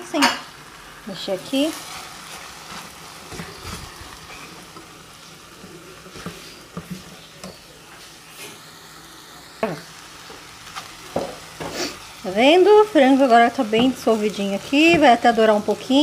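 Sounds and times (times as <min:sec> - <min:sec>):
chicken sizzling in a pan: 0:00.0 - 0:16.0
spatula scraping and tapping pan: 0:01.8 - 0:04.9, 0:05.6 - 0:07.6, 0:10.2 - 0:12.0, 0:13.1 - 0:16.0.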